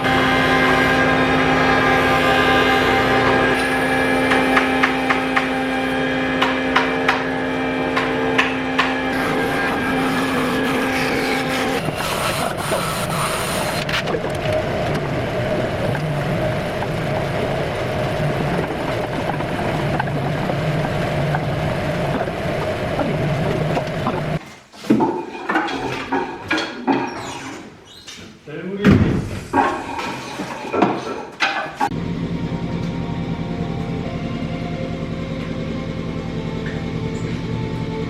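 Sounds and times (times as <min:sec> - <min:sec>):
woodworking machine humming: 0:00.0 - 0:24.4, 0:29.8 - 0:38.0.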